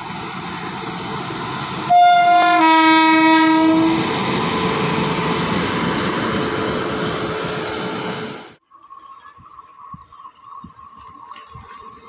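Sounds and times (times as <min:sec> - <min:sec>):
train coaches rumbling and clattering: 0:00.0 - 0:08.6, 0:09.2 - 0:12.0
locomotive horn: 0:01.9 - 0:04.1.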